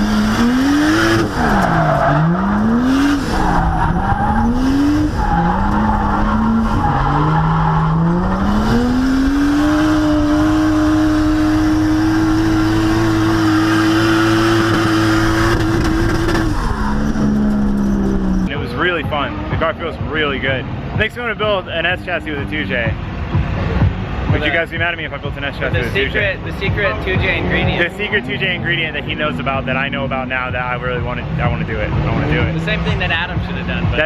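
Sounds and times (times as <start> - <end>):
car engine revving: 0.0 - 34.0
tyres squealing: 0.6 - 18.5.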